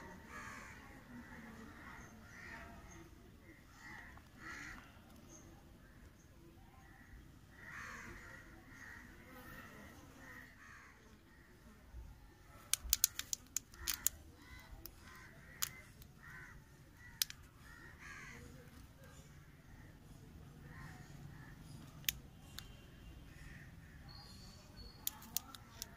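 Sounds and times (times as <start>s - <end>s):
crows cawing: 0.2s - 1.0s, 3.6s - 5.1s, 7.5s - 9.1s, 10.3s - 11.0s, 13.8s - 18.6s
plastic cups crackling: 12.6s - 17.8s, 25.0s - 25.9s.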